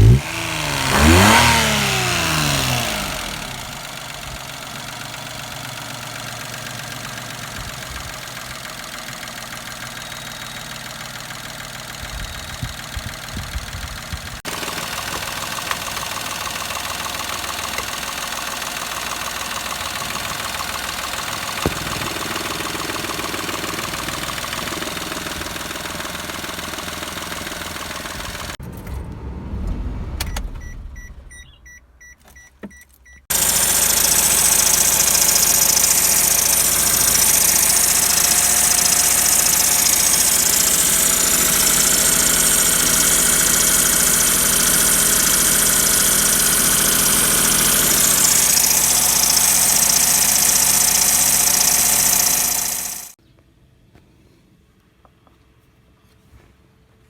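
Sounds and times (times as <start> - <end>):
car engine running: 0.0 - 31.7, 33.2 - 53.2
loud running sound with high hiss: 33.3 - 53.2.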